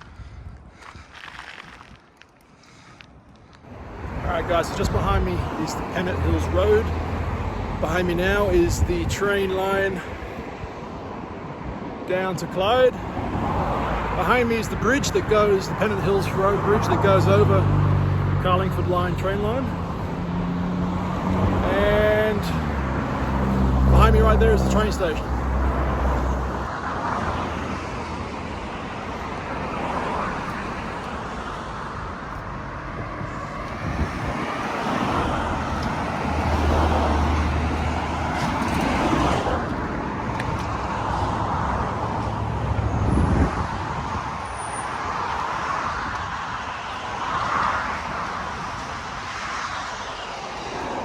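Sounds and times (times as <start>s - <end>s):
road traffic passing: 0.0s - 51.0s
heavy vehicle rumble: 13.2s - 49.4s.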